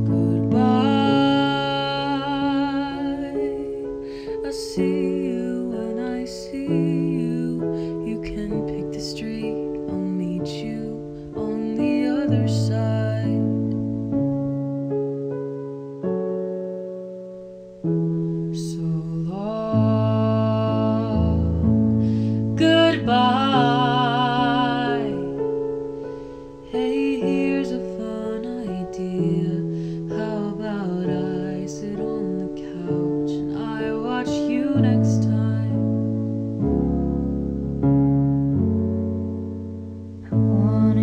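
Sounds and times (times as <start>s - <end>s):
person singing: 0.0s - 13.8s, 18.5s - 36.0s, 40.2s - 41.0s
piano chords: 0.0s - 41.0s.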